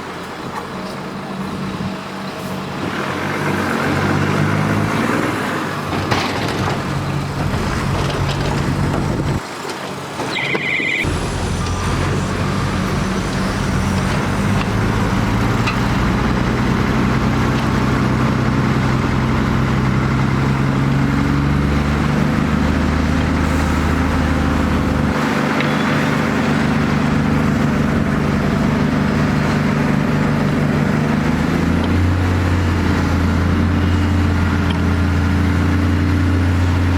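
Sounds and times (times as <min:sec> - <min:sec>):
heavy diesel machinery running: 0:00.0 - 0:36.9
brief high tone: 0:10.3 - 0:11.1.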